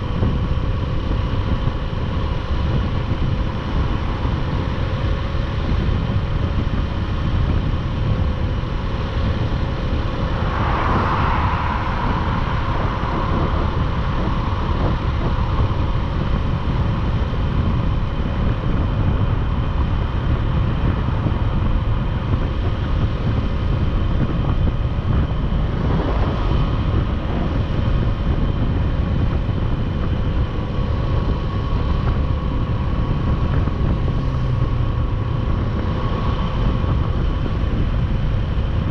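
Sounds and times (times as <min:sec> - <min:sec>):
road noise: 0:00.0 - 0:38.9
wind noise on microphone: 0:00.0 - 0:38.9
motorcycle engine droning: 0:08.4 - 0:29.1.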